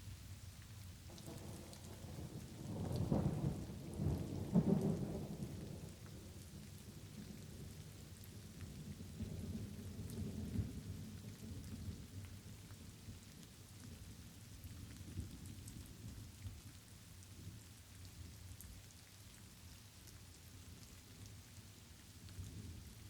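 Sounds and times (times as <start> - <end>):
light rain pattering: 0.0 - 23.0
thunder rumbling: 1.1 - 6.0.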